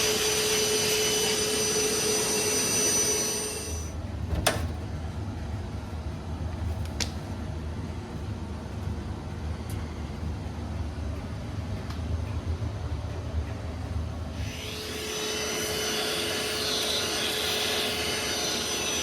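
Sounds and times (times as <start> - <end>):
vacuum cleaner whine: 0.0 - 4.0, 14.3 - 19.0
steady low hum: 0.0 - 19.0.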